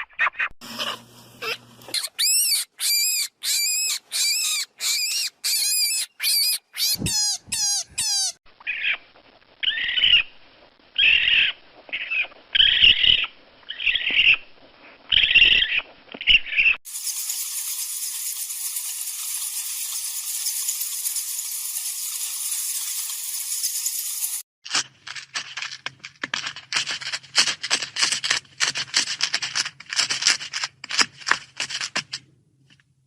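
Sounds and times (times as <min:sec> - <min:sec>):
harsh raspy animal calls: 0:00.2 - 0:09.0
high repeated animal call notes: 0:00.8 - 0:09.0.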